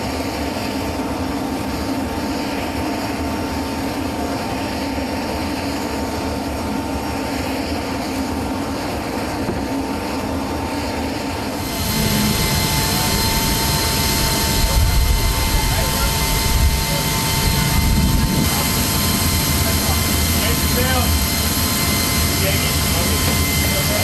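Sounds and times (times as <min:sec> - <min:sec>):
jet engine whine: 0:00.0 - 0:24.0.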